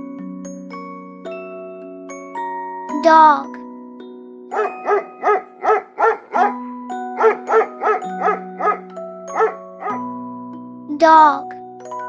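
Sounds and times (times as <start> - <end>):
soft background music: 0.0 - 12.0
dog barking: 4.6 - 10.0.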